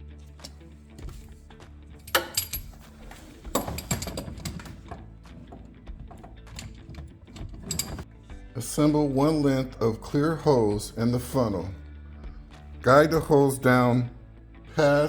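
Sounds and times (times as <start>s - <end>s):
faint background music: 0.0s - 15.0s
ratchet clicking: 2.1s - 8.0s.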